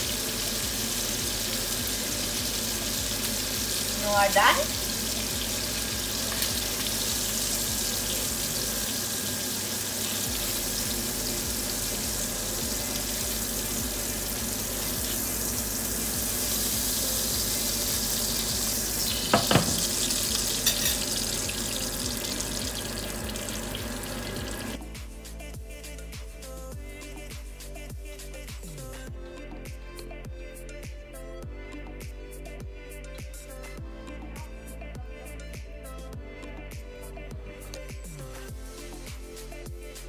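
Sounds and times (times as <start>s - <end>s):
pork chops sizzling in pan: 0.0s - 24.8s
music: 0.0s - 40.0s
metal clattering on pan: 20.5s - 21.2s.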